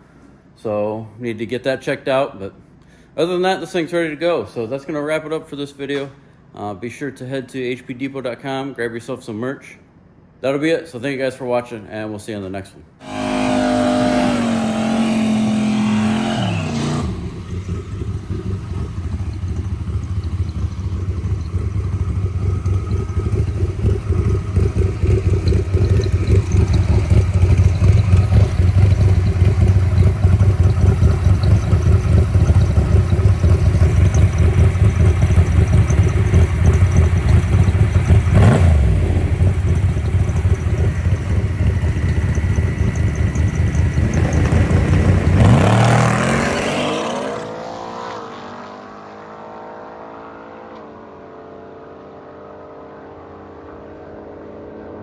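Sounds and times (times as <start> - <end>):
car engine exhaust rumble: 13.0 - 47.6
falling pitched tone: 13.0 - 48.1.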